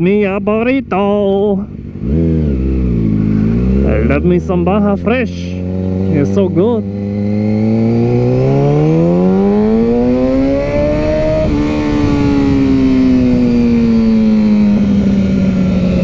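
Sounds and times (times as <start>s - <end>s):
motorcycle engine revving: 0.0s - 16.0s
wind rushing: 6.8s - 16.0s.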